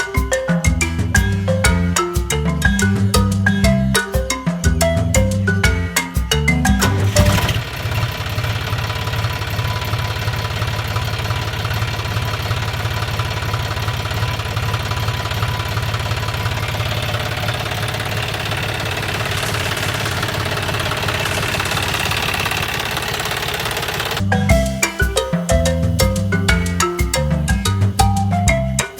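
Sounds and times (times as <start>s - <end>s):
diesel engine idling: 6.8s - 24.4s.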